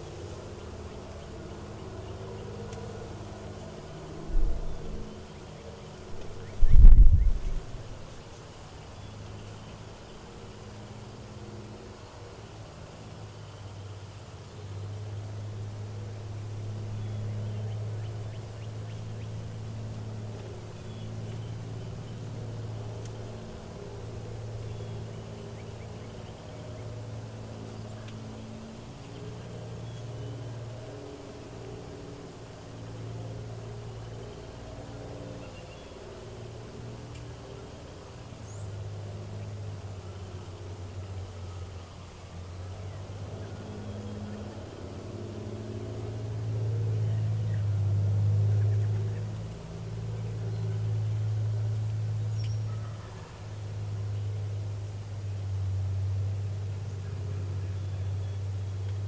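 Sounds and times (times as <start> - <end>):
low engine-like hum: 0.0 - 59.0
faint bird chirps: 4.3 - 8.2.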